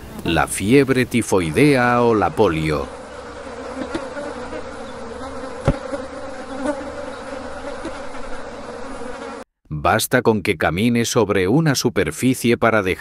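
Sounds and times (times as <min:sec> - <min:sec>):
flies buzzing: 0:00.0 - 0:09.5.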